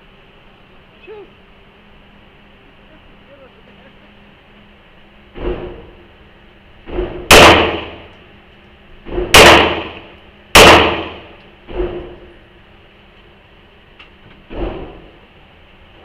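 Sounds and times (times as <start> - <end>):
fainter gunshots: 6.9 - 8.1, 9.1 - 12.0
loud gunshots with echo: 7.3 - 8.1, 9.3 - 11.4.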